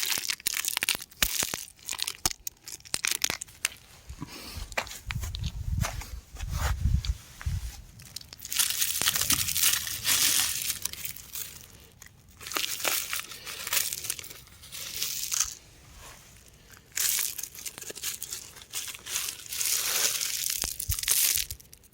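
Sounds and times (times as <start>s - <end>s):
rock crunching and crackling: 0.0s - 21.9s
low rumble: 4.1s - 8.0s.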